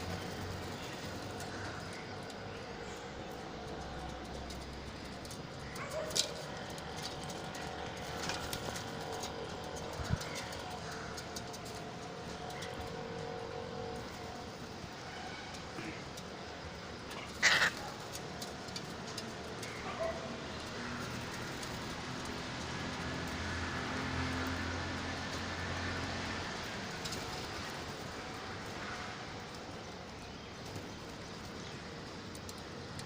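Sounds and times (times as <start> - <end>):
steady background noise: 0.0 - 33.0
parrot squawk: 17.4 - 17.9.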